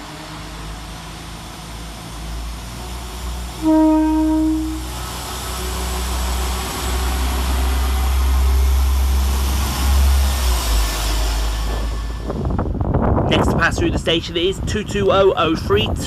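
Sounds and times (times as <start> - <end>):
diesel train engines running: 0.0 - 16.0
train horn note: 3.6 - 5.1.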